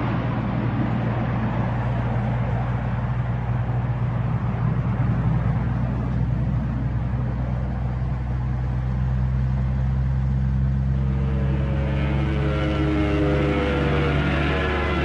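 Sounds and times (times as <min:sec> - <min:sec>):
engine drone: 0:00.0 - 0:15.0.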